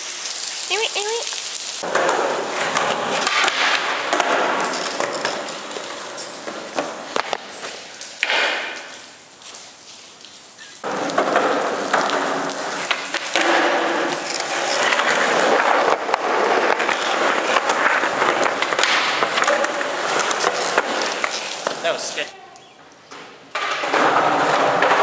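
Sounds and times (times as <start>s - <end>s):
skateboard wheels rolling on pavement: 0.0s - 25.0s
skateboard knocks: 10.9s - 14.3s.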